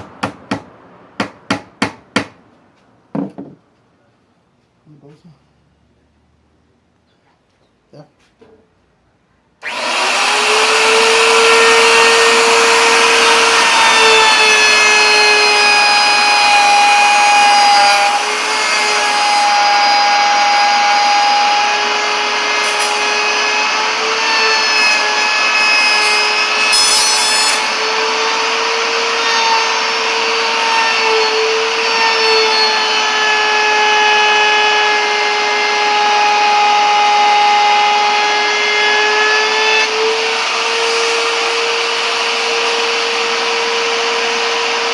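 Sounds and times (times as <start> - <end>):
wood router whining: 9.6 - 44.9.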